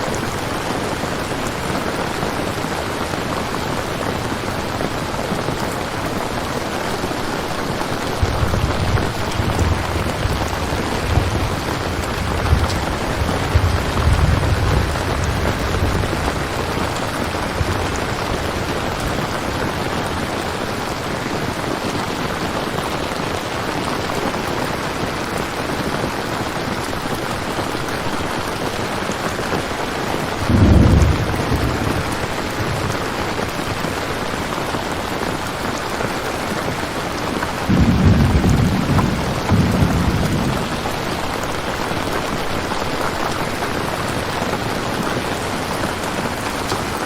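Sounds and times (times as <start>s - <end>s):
steady rain falling: 0.0s - 47.0s
low rolls of thunder: 7.4s - 21.0s, 30.4s - 33.8s, 37.6s - 47.0s.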